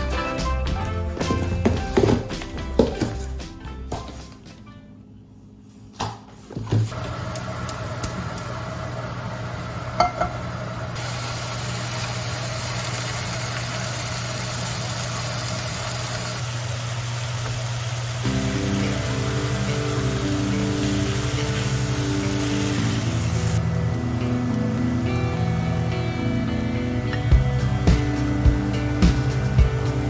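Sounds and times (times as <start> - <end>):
kitchen fan humming: 6.8 - 30.0
meat and onion sizzling in a pan: 11.0 - 23.6.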